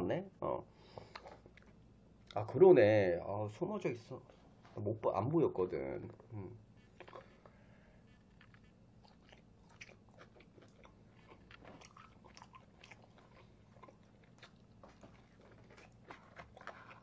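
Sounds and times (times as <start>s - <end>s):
steady low hum: 0.0s - 17.0s
wet chewing mouth clicks: 8.3s - 17.0s.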